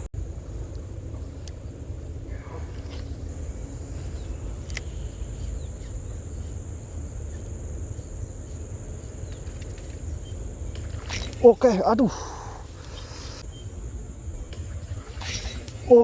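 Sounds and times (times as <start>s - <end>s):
low wind rumble: 0.0s - 16.0s
high-pitched insect drone: 0.2s - 16.0s
sharp clicks: 2.8s - 6.2s.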